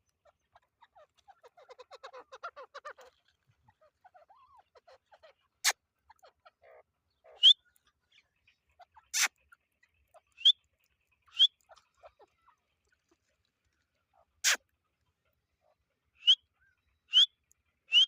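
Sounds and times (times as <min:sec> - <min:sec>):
birds chattering softly: 0:00.0 - 0:18.0
sharp bird calls: 0:04.1 - 0:09.5, 0:10.1 - 0:12.2, 0:16.2 - 0:18.0.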